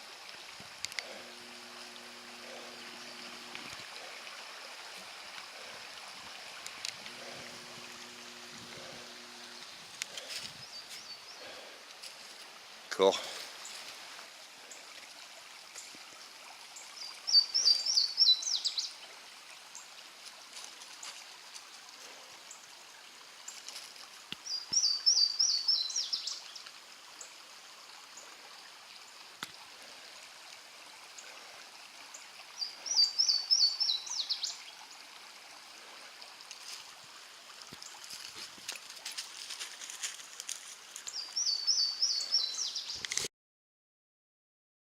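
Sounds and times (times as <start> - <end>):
creek rushing: 0.0 - 43.2
songbird singing: 0.9 - 4.1, 6.6 - 11.6, 16.8 - 19.0, 24.4 - 26.7, 32.1 - 34.8, 41.1 - 43.1.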